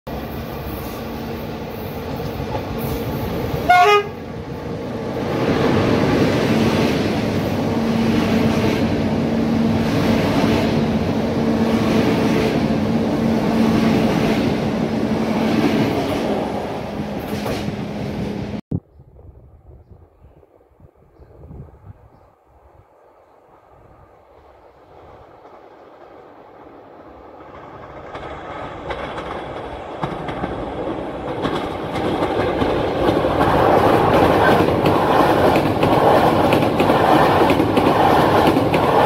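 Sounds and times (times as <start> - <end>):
steady train hum: 0.1 - 39.0
train horn blast: 3.6 - 4.2.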